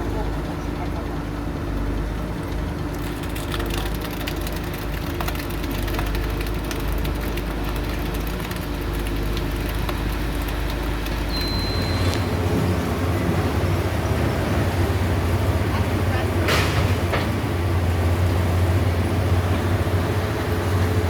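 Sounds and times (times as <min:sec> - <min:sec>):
construction machine diesel engine: 0:00.0 - 0:21.0
brief high tone: 0:11.3 - 0:12.3.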